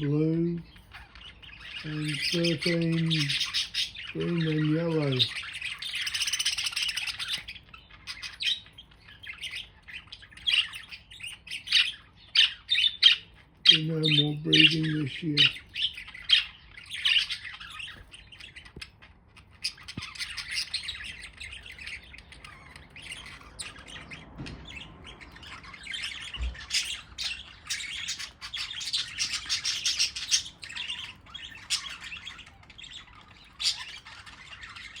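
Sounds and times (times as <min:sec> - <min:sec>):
budgerigars chirping and squawking: 0:00.0 - 0:35.0.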